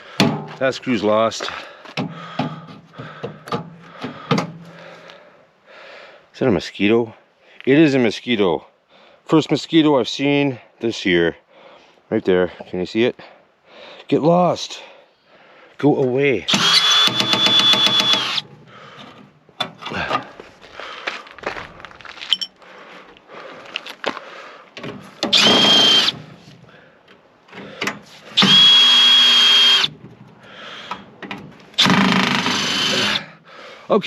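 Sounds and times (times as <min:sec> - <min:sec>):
power drill motor whine: 0:16.5 - 0:18.4, 0:25.3 - 0:26.2, 0:28.4 - 0:29.9, 0:31.8 - 0:33.2.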